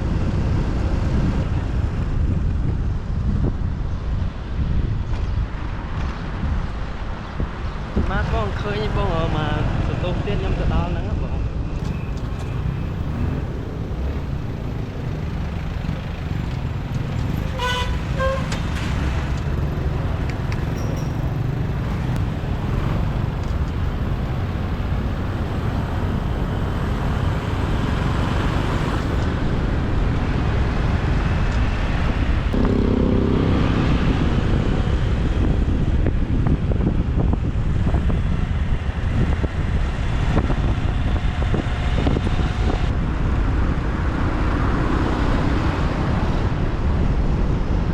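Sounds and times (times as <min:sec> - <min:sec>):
motorbike engine rumble: 0:11.8 - 0:29.3, 0:32.6 - 0:38.1
long low horn: 0:17.3 - 0:19.4, 0:32.6 - 0:35.4.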